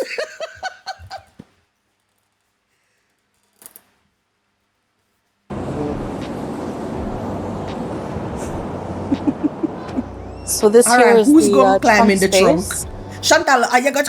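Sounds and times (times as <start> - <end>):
outdoor rushing noise: 5.5 - 13.2.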